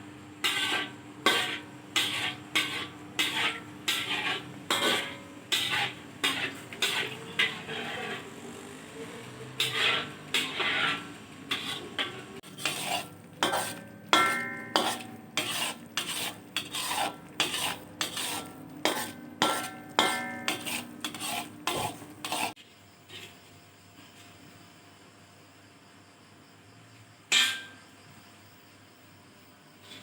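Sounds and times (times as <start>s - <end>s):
spoon stirring in metal pot: 0.4s - 8.4s, 9.5s - 22.6s.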